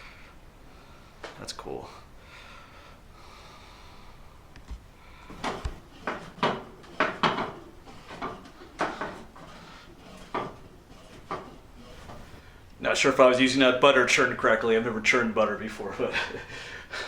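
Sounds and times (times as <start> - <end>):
butter churn dasher knocking: 5.3 - 12.4.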